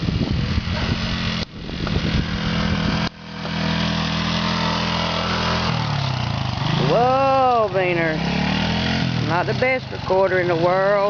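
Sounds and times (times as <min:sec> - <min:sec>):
dirt bike engine idling: 0:00.0 - 0:11.0.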